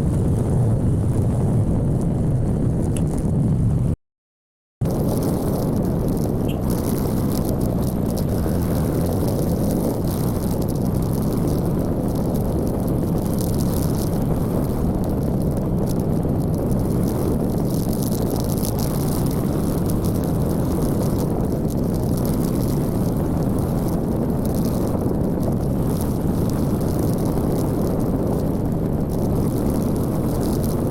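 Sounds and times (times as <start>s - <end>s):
motorcycle engine and road drone: 0.0s - 4.0s, 4.8s - 30.9s
wind buffeting microphone: 0.0s - 4.0s, 4.8s - 30.9s.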